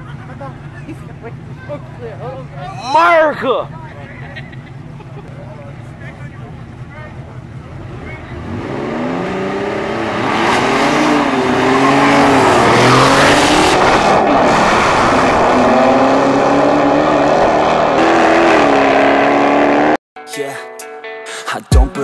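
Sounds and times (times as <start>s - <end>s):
car engine revving: 5.6s - 20.0s.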